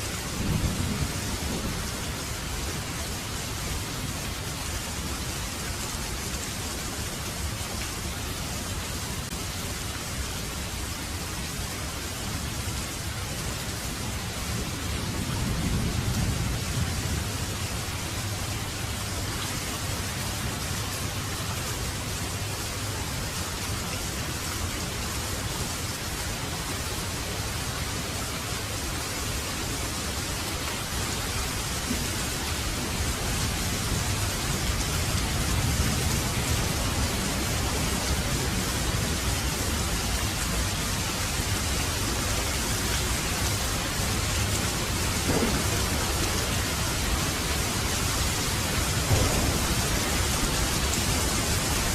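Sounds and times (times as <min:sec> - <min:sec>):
heavy rain hissing: 0:00.0 - 0:51.9
low rumble: 0:49.1 - 0:51.9.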